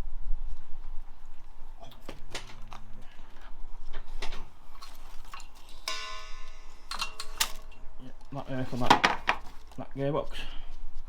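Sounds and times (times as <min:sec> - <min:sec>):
hand tools knocking on metal: 0:04.9 - 0:07.8, 0:08.7 - 0:09.6
ringing metallic clink: 0:05.4 - 0:07.9.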